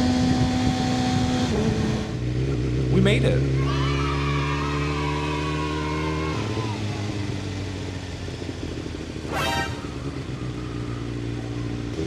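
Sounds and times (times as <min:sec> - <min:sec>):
motorcycle engine running: 0:00.0 - 0:12.0
horn toot: 0:09.2 - 0:10.4.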